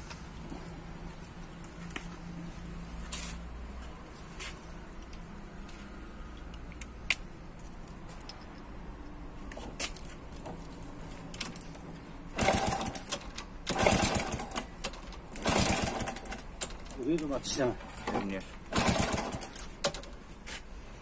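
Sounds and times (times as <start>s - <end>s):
motorcycle engine sputtering: 18.7s - 19.6s.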